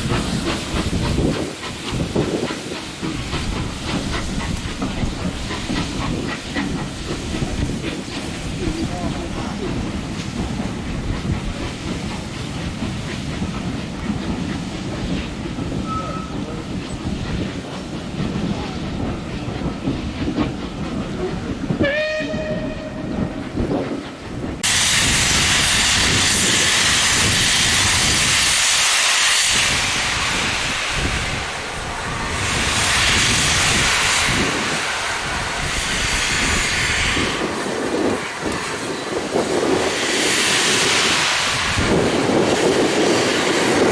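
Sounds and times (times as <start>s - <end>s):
hiss of escaping steam: 0.0s - 21.8s, 22.4s - 43.9s
steam locomotive rumble: 0.0s - 43.9s
steam locomotive whistle: 21.8s - 23.1s.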